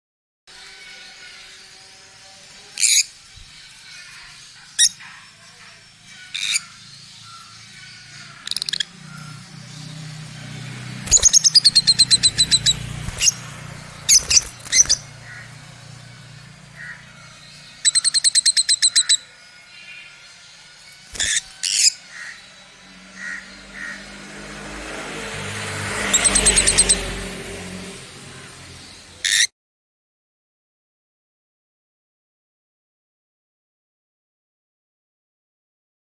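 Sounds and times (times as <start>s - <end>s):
lovebirds chirping: 0.9s - 24.7s, 25.6s - 29.5s.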